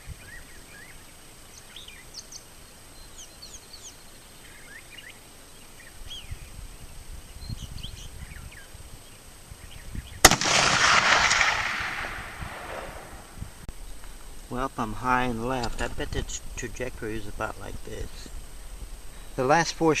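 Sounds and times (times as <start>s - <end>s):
mockingbird singing: 0.0s - 10.4s
rifle shot: 10.2s - 13.4s.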